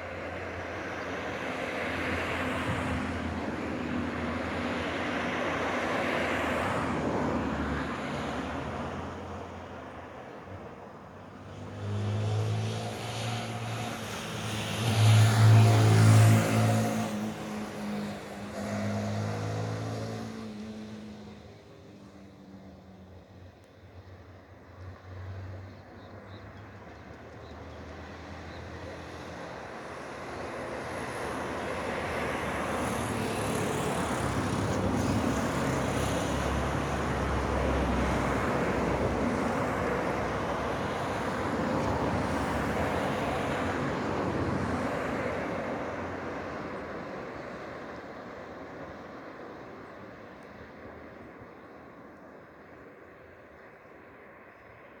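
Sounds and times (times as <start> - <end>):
vehicle passing: 11.6 - 21.4.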